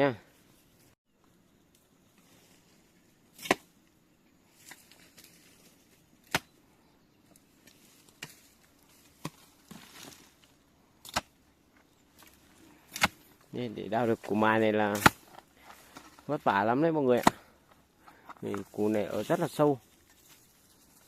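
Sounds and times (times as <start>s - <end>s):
digging tool striking ground: 3.3s - 3.8s, 6.2s - 6.6s, 7.6s - 10.4s, 11.0s - 11.5s, 12.1s - 13.5s, 14.3s - 16.3s, 17.0s - 18.9s
soil scraping: 7.3s - 21.0s.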